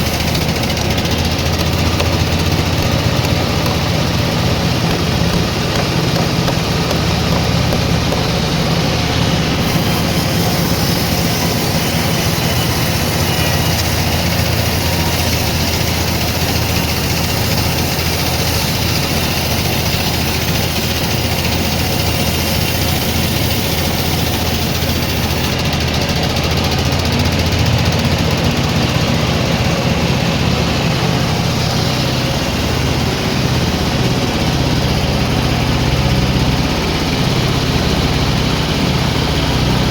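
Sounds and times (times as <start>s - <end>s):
dense mechanical noise: 0.0s - 39.9s
sawmill engine drone: 0.0s - 39.9s.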